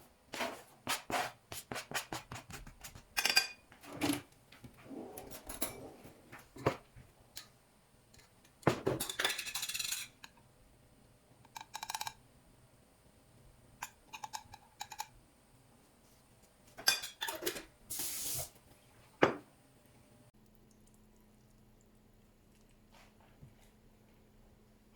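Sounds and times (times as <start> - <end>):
dishes and cutlery clinking: 3.1 - 4.2, 8.2 - 10.4, 16.8 - 17.7.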